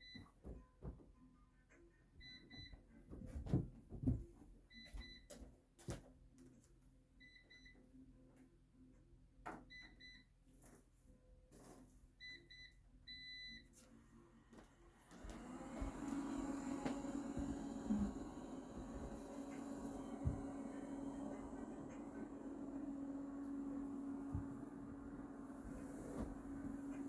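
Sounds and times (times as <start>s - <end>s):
faint low hum: 12.2s - 27.0s.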